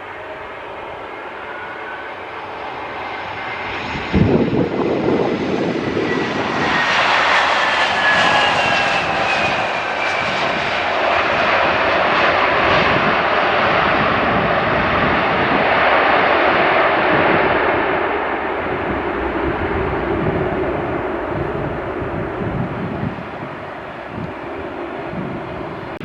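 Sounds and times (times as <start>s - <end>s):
airliner engines passing: 0.0s - 26.0s
low rumble: 17.0s - 26.0s
high engine whine falling in pitch: 17.4s - 25.9s.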